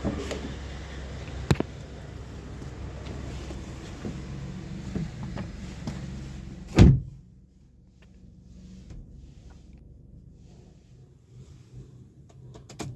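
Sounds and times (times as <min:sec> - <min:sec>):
car door shutting: 0:03.0 - 0:07.2.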